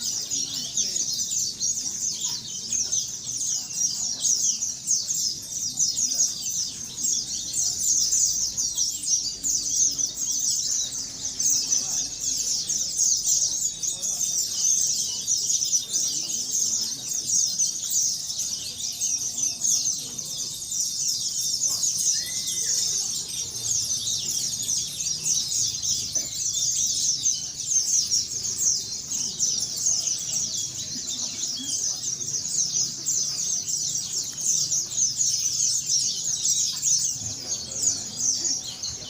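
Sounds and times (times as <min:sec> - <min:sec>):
birds twittering trills: 0:00.0 - 0:39.0.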